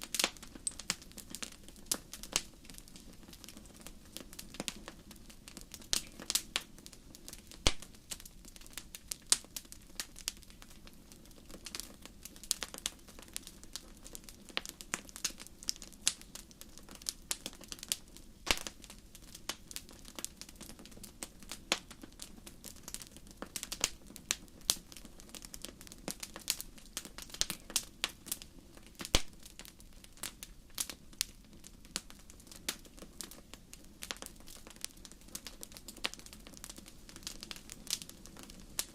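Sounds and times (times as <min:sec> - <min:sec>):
wood snapping and popping: 0:07.6 - 0:08.0, 0:18.5 - 0:18.8, 0:29.0 - 0:29.4.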